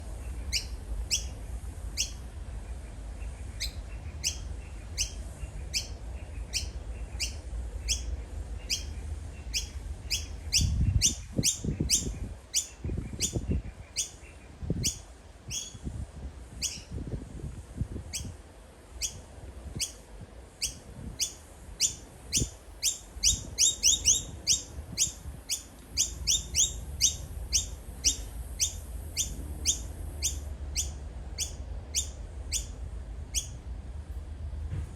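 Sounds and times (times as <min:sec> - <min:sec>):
low rumbling noise: 0:00.0 - 0:34.9
bird giving sharp high calls: 0:20.6 - 0:32.7.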